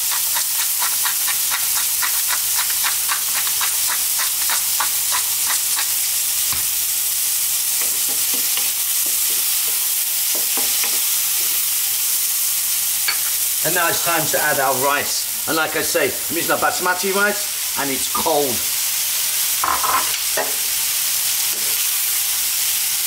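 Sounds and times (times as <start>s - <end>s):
wooden spatula stirring: 0.0s - 6.0s
vegetables sizzling in a wok: 0.0s - 23.0s.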